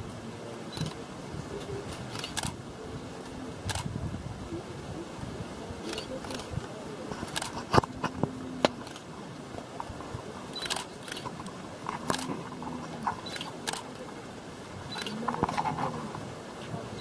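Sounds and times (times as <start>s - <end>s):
camera shutter clicks: 2.1s - 2.6s, 10.6s - 11.3s, 12.1s - 12.3s, 13.2s - 13.8s.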